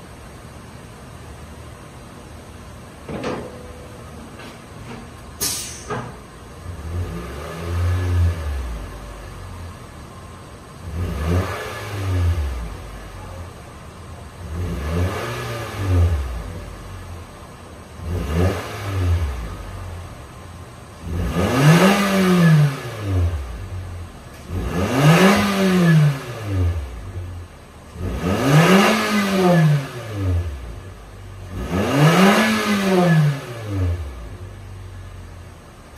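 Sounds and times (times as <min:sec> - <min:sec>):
car engine revving: 0:06.6 - 0:35.9.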